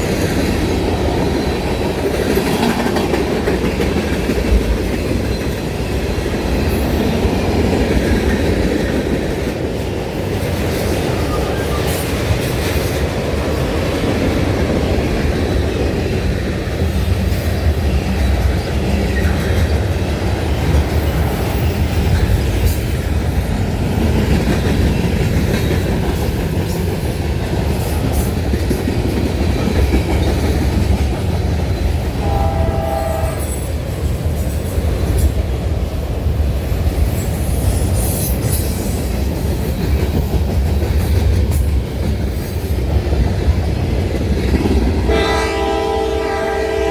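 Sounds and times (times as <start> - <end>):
train rumbling past: 0.0 - 46.9
train horn blast: 32.2 - 33.6, 45.1 - 46.9.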